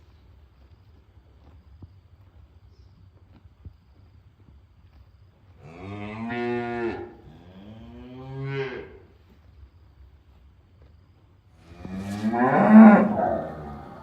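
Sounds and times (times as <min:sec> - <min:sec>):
cow mooing: 0:11.6 - 0:14.0.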